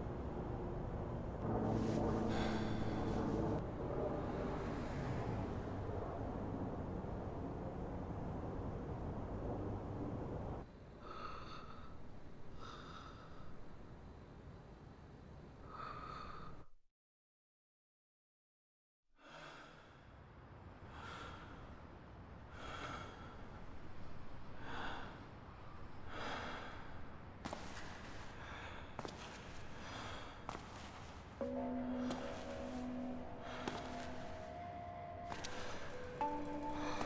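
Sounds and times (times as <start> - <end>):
low rumble: 0.0 - 10.6
person breathing heavily: 1.9 - 3.6, 11.0 - 13.7, 15.6 - 16.7, 26.0 - 27.2, 28.2 - 30.6, 31.5 - 34.6, 35.3 - 37.0.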